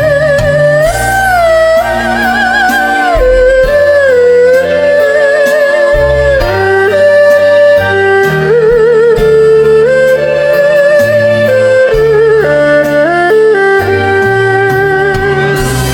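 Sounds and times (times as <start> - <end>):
backing track with bass and beat: 0.0 - 15.9
erhu melody: 0.0 - 15.9.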